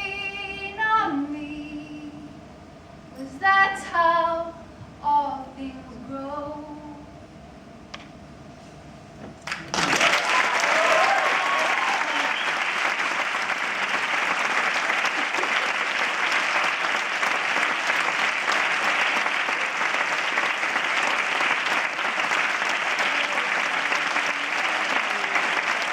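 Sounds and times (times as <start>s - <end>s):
audience applauding: 9.4s - 25.9s.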